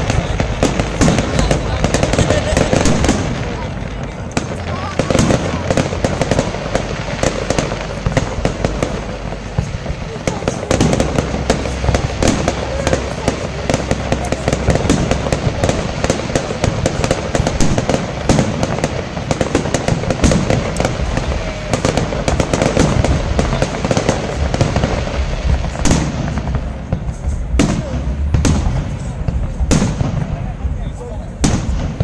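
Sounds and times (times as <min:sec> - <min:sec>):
fireworks bangs and crackles: 0:00.0 - 0:32.0.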